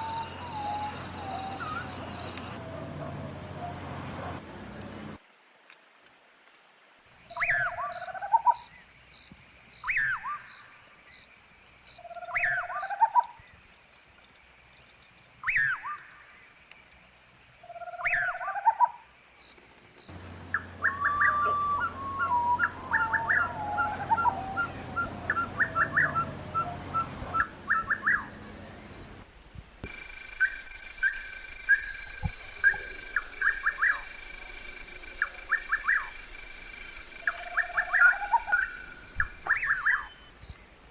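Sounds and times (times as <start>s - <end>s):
birds calling: 0.0s - 5.2s, 20.1s - 29.2s, 29.8s - 40.8s
steady high whine: 20.1s - 40.4s.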